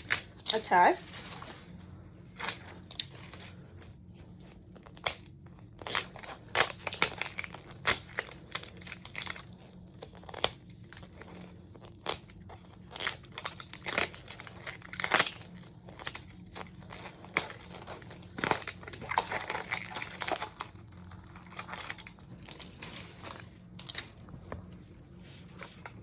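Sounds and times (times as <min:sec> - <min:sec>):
plastic wrap crinkling and tearing: 0:00.0 - 0:26.0.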